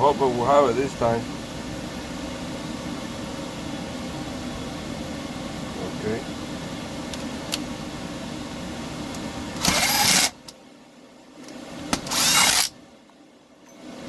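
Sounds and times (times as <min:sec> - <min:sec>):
recoil starter pull whirr: 0:09.1 - 0:10.5, 0:11.9 - 0:12.8.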